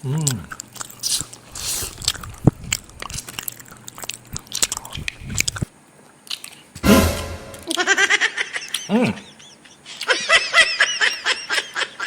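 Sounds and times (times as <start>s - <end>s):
person chewing noodles: 0.0s - 6.8s.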